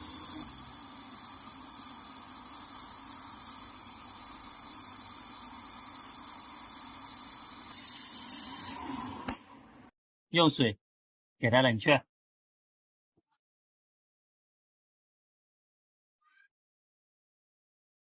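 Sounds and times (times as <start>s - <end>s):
torch flame hissing: 0.0s - 9.4s.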